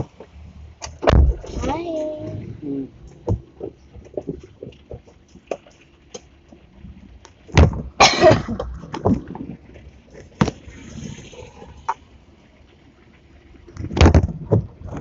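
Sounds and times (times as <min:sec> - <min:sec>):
loud thump: 0:01.0 - 0:01.7.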